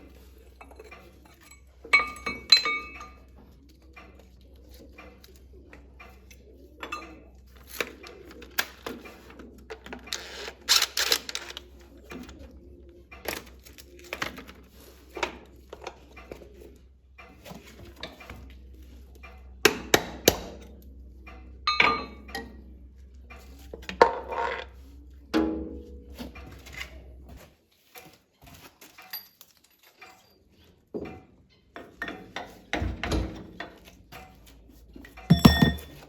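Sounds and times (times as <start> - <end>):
metal tools clinking on workbench: 35.3 - 36.0.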